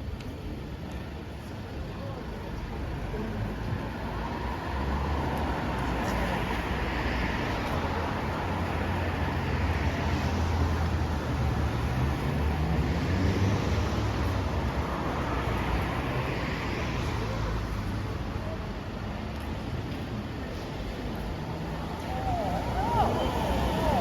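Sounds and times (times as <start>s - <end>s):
cars passing with a hiss: 0.0s - 24.0s.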